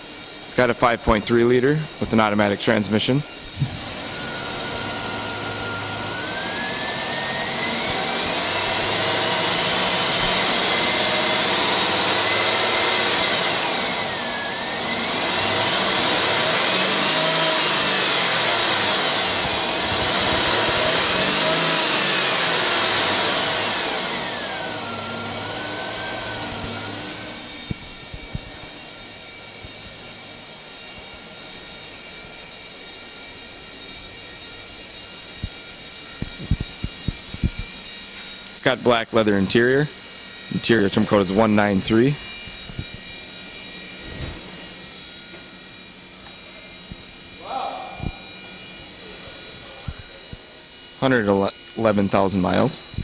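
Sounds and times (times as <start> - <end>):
car engine revving: 14.7 - 27.2.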